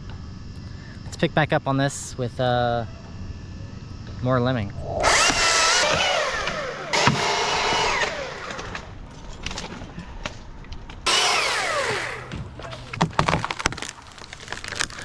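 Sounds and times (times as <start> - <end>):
chainsaw engine revving: 5.0 - 9.1, 11.0 - 12.9.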